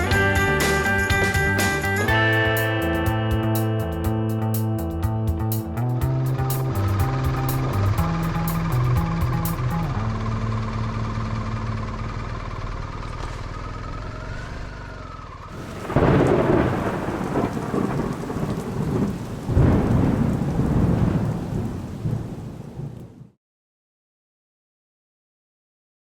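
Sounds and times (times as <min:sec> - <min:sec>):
background music: 0:00.0 - 0:11.4
rain: 0:06.2 - 0:11.3, 0:15.4 - 0:23.4
thunder rumbling: 0:15.5 - 0:23.3.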